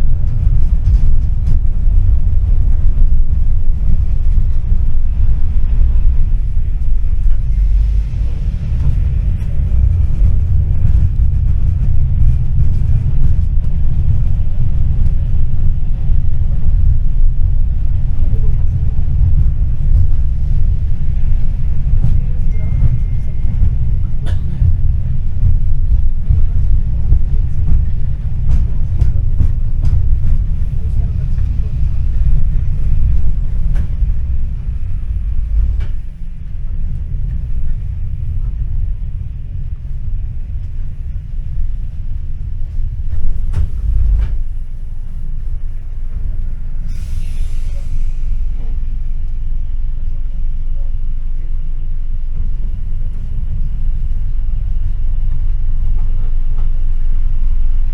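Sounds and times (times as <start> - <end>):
tram rumbling on rails: 0.0 - 57.9
short hiss: 46.9 - 48.5.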